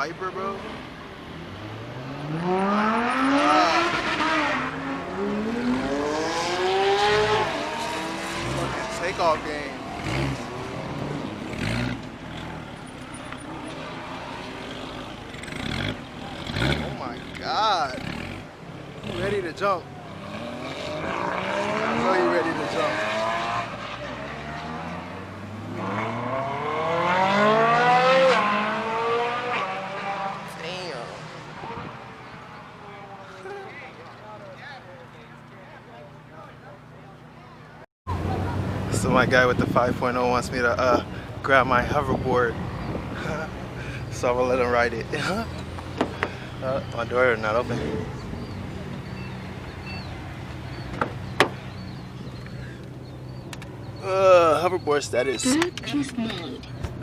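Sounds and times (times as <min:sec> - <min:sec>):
car engine revving: 0:00.0 - 0:34.6.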